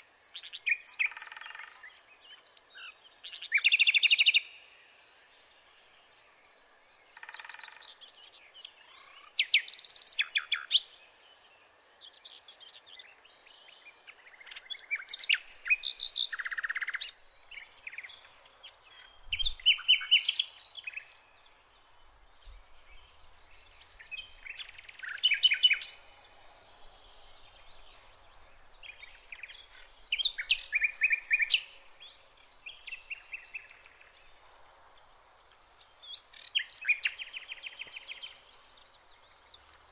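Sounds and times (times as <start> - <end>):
birds singing and chirping: 6.0 - 35.2.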